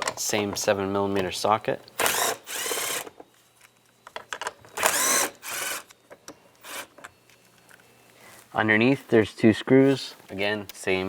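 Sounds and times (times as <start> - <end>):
cordless drill motor bursts: 2.0 - 3.1, 4.8 - 5.9, 6.6 - 6.9.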